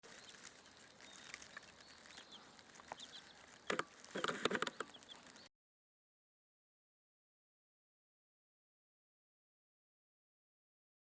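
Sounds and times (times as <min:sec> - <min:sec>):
rustling and scratching: 0:00.0 - 0:05.5
chicks peeping: 0:00.1 - 0:05.5.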